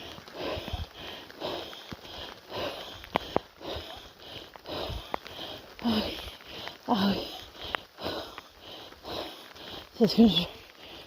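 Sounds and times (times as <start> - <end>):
person breathing heavily: 0.0 - 11.0.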